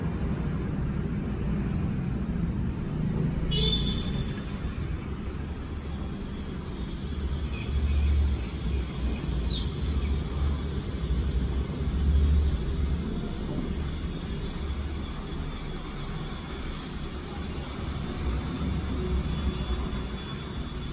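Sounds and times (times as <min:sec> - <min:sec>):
sparrow chirps: 0:09.4 - 0:10.3.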